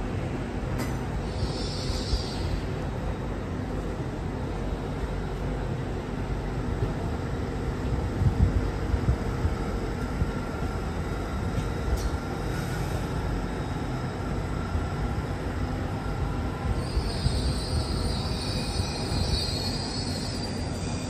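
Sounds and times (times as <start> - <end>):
train rumbling: 0.0 - 21.0
high-pitched wheel squeal: 1.2 - 2.6, 16.7 - 21.0.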